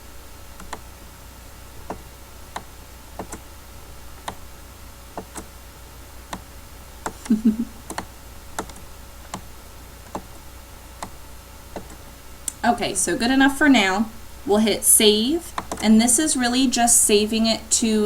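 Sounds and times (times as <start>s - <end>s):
faint electrical hum: 0.0s - 18.0s
computer mouse clicking: 0.6s - 0.8s, 1.8s - 3.5s, 4.2s - 4.4s, 5.1s - 5.5s, 6.3s - 12.6s, 15.5s - 15.9s.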